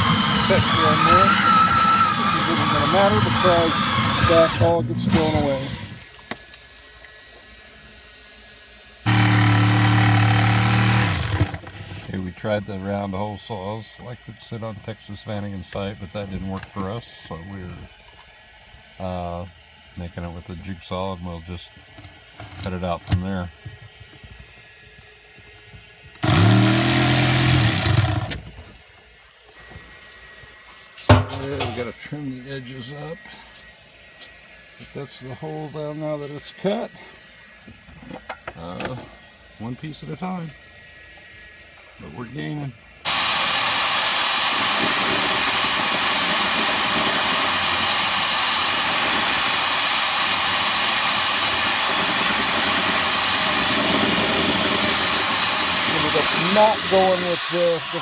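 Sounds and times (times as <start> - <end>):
electric machine rushing noise: 0.0 - 6.1, 43.1 - 58.0
jigsaw cutting panel: 0.0 - 6.5, 9.1 - 12.1, 26.2 - 28.5, 43.1 - 58.0.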